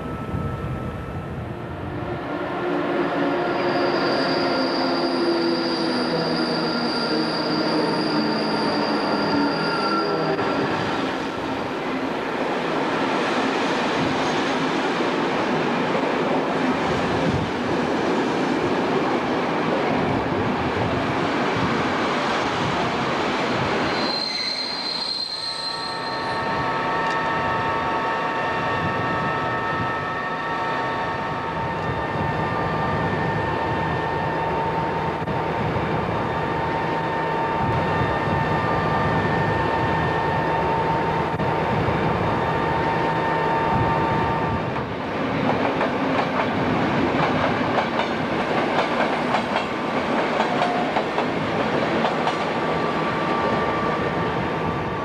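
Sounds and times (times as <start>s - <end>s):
train coaches rumbling past: 0.0s - 55.0s
wheel squeal: 3.6s - 10.4s, 23.9s - 26.6s.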